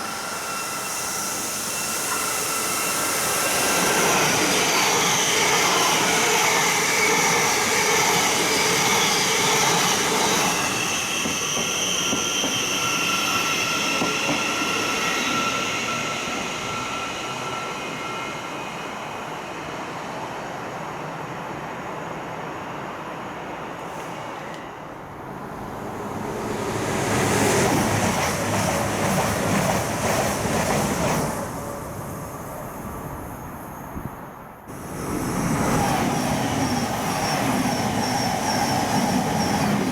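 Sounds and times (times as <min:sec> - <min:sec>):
train wheels rushing on rail: 0:00.0 - 0:39.9.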